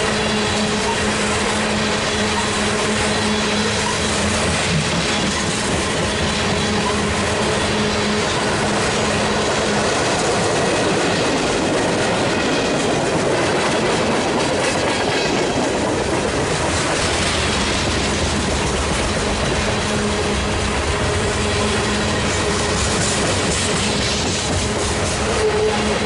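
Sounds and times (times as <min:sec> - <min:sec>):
freight train wheels rumbling: 0:00.0 - 0:26.0
high-pitched wheel squeal: 0:00.3 - 0:04.3.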